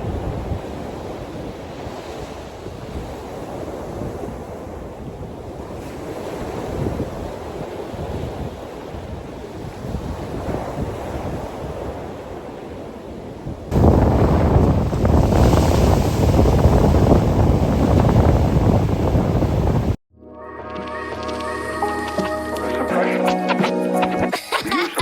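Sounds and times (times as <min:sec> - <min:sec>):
wind buffeting microphone: 0:00.0 - 0:20.0
surf rushing: 0:13.7 - 0:20.0.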